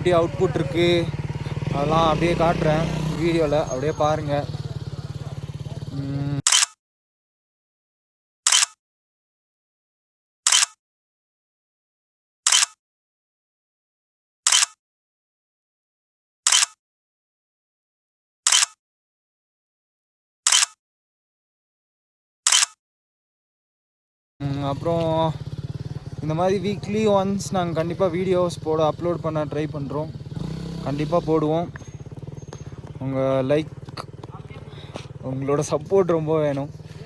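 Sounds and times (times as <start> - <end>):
camera shutter click: 8.5 - 8.8, 10.5 - 10.7, 12.5 - 12.7, 14.5 - 14.7, 16.5 - 16.7, 18.5 - 18.7, 20.5 - 20.8, 22.5 - 22.8.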